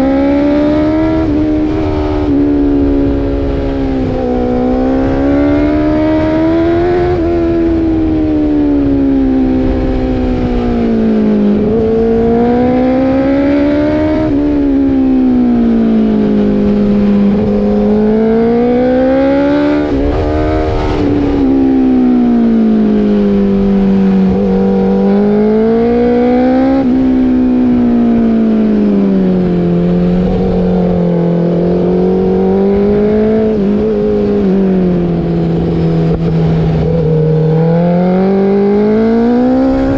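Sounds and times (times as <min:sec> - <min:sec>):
motorcycle engine revving: 0:00.0 - 0:39.9
wind rushing: 0:16.6 - 0:25.0.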